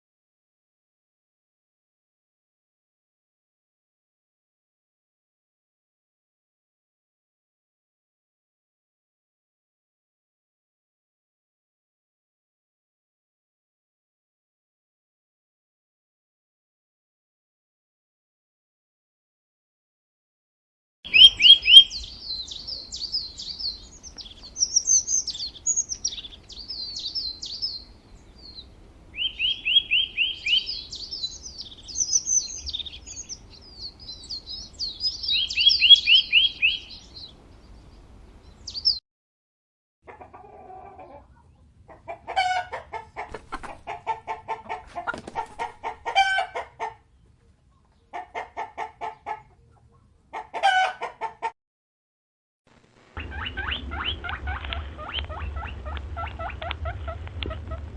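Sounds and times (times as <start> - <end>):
chicken clucking: 21.1 - 37.3, 40.1 - 51.5, 53.2 - 57.9
songbird trilling: 21.1 - 39.0.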